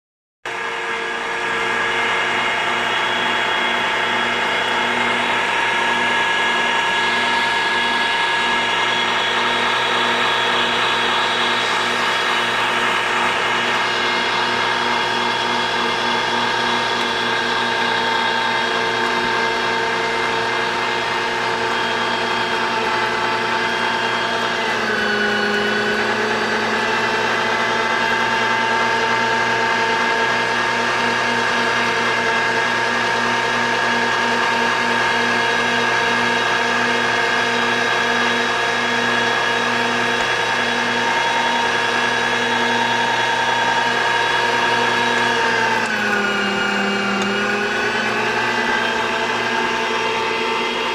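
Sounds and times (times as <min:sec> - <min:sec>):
electric meat grinder whining: 0:00.5 - 0:50.9.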